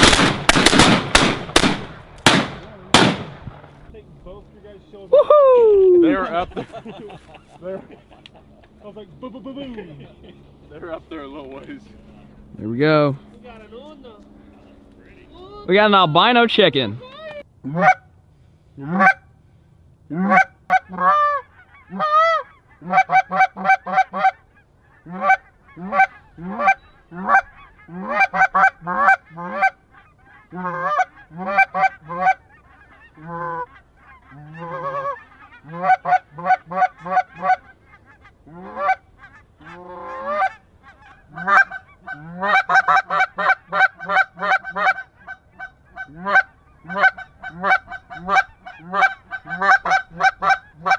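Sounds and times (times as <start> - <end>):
goose honking and clucking: 17.6 - 18.1, 18.8 - 19.3, 20.1 - 50.9.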